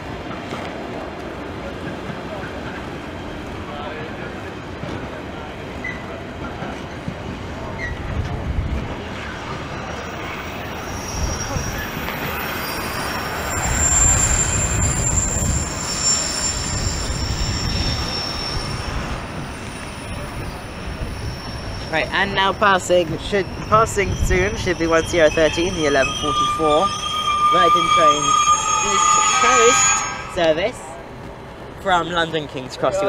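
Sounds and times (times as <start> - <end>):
freight train wagons rolling: 0.0 - 33.0
high wheel squeal: 9.1 - 31.0.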